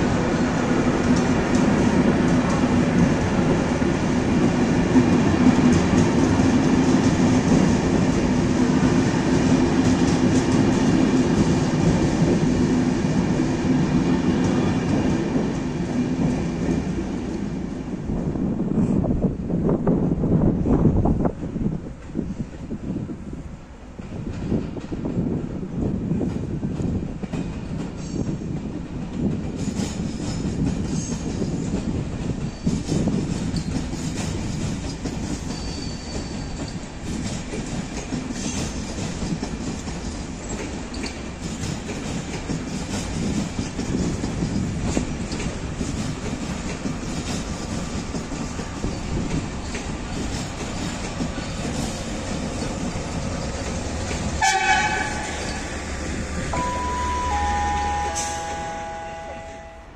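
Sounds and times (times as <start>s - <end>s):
train wheels rumbling: 0.0s - 59.9s
wheels clicking over rail joints: 26.2s - 56.6s
high-pitched tone: 56.6s - 59.9s.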